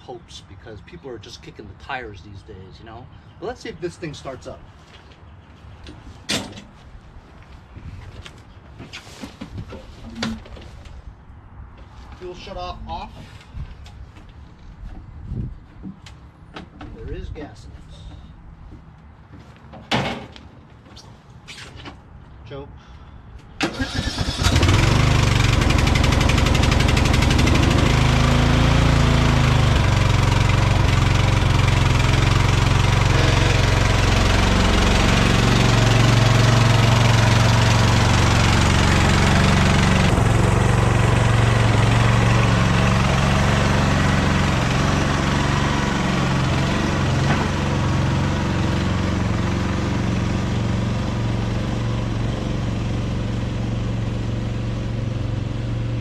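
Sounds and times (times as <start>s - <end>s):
small gasoline engine running: 23.8s - 55.9s.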